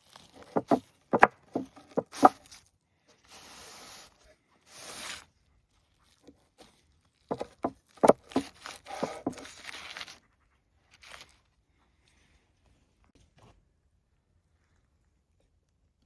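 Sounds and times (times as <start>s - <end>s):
scraping noises: 0.4s - 2.6s, 7.3s - 10.2s
sharp clicks and knocks: 0.5s - 2.4s, 7.3s - 9.4s.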